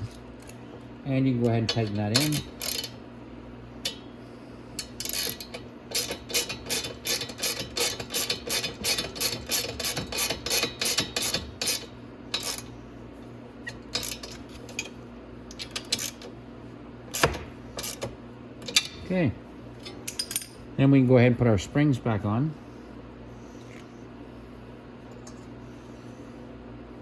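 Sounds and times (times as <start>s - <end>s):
steady low hum: 0.0s - 27.0s
socket ratchet clicking: 4.8s - 12.6s.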